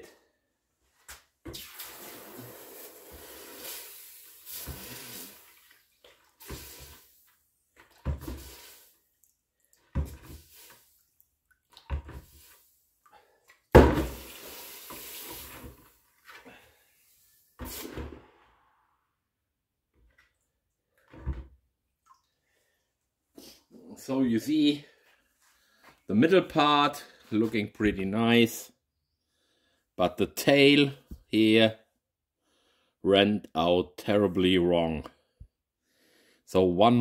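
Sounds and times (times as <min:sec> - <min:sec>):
running water splashing: 0:01.6 - 0:12.6, 0:13.9 - 0:15.8.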